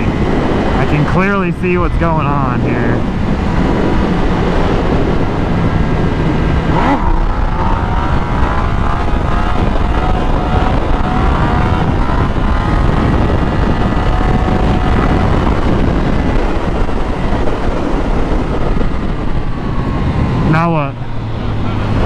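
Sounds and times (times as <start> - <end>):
wind buffeting microphone: 0.0 - 22.0
motorcycle engine: 2.2 - 22.0.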